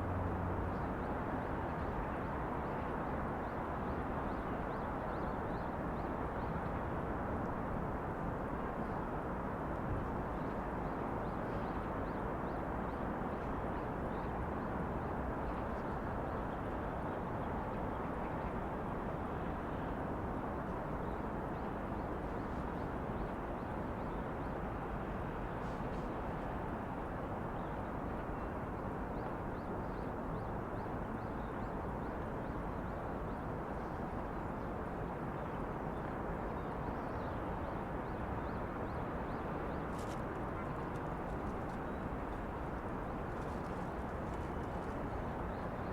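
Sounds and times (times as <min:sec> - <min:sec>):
distant traffic hum: 0:21.7 - 0:45.9.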